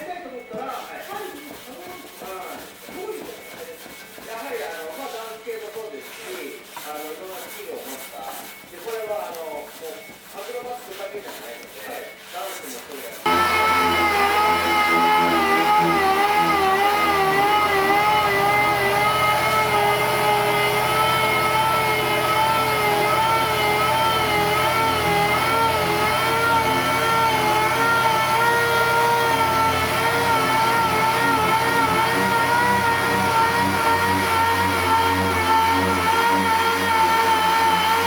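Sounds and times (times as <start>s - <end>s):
power tool motor whine: 13.2s - 38.0s.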